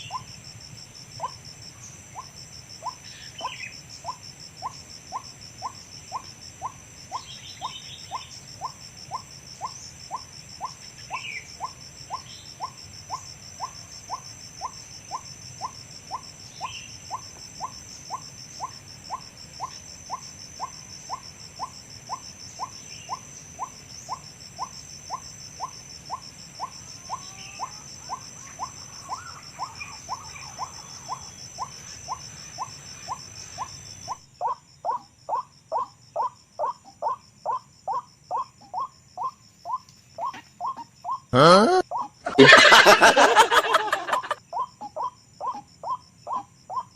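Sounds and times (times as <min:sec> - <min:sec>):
high insect whine: 0:00.0 - 0:46.9
waterhen calls: 0:41.4 - 0:44.4.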